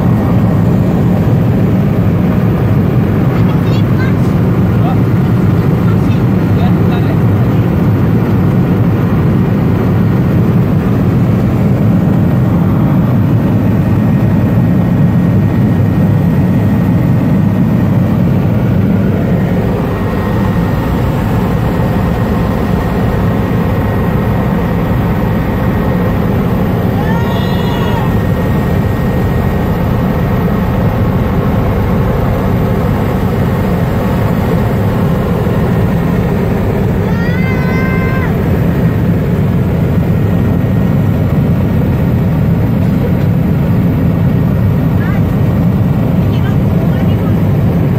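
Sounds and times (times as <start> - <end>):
helicopter engine and rotor drone: 0.0 - 47.9.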